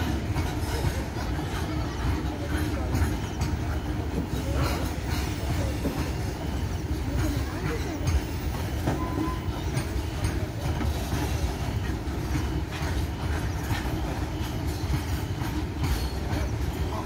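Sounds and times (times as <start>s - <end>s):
freight train rumbling past: 0.0s - 17.0s
wheels clacking on rails: 0.0s - 17.0s.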